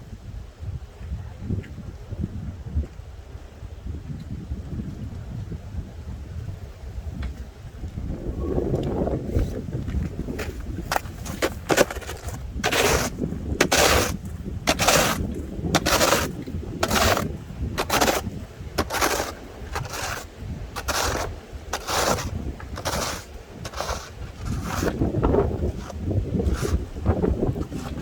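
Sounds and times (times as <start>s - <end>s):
wind rumbling on microphone: 0.0s - 28.0s
footsteps crunching through snow: 9.4s - 28.0s.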